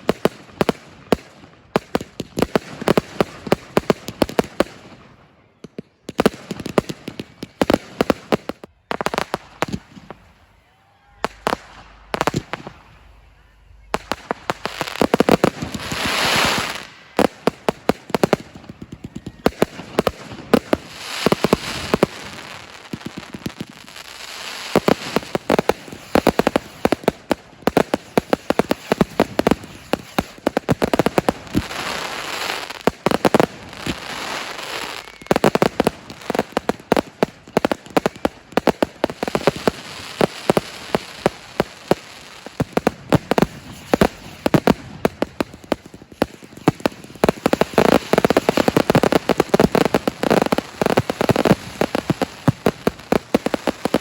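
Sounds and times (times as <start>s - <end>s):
fireworks bangs: 0.0s - 54.0s
hissing crackle: 20.1s - 38.5s, 39.2s - 54.0s.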